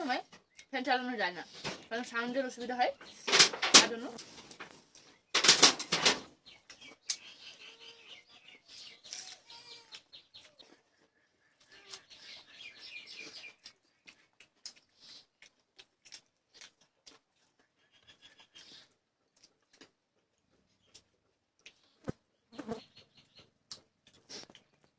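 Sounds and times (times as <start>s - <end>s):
birds chirping: 0.0s - 10.6s, 11.7s - 13.6s
loud rustle: 5.4s - 6.3s.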